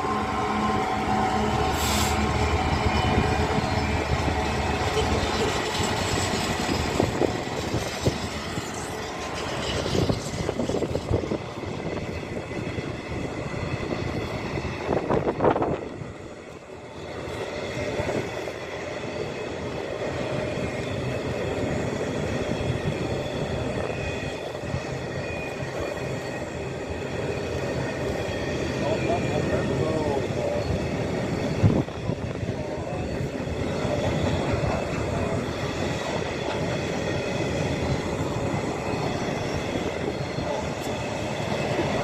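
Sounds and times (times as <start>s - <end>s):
freight train rumbling past: 0.0s - 42.0s.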